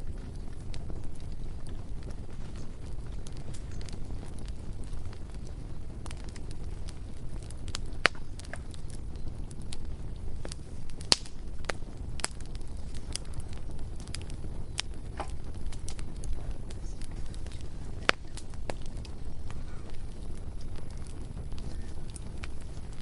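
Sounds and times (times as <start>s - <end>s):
bonfire crackling and popping: 0.0s - 23.0s
low rumble of burning fire: 0.0s - 23.0s.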